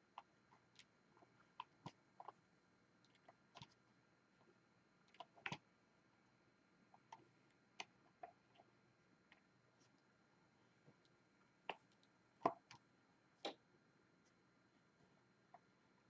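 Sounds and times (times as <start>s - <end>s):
small plastic clicks and taps: 13.4s - 13.6s.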